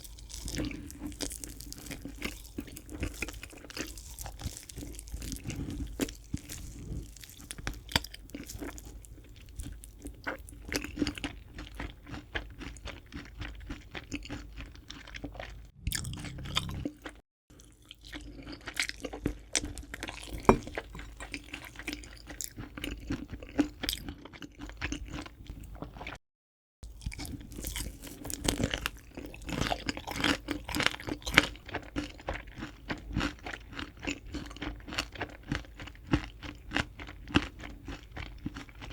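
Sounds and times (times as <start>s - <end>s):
crispy chicken crunching and chewing: 0.0s - 16.9s, 17.5s - 26.2s, 26.8s - 38.9s.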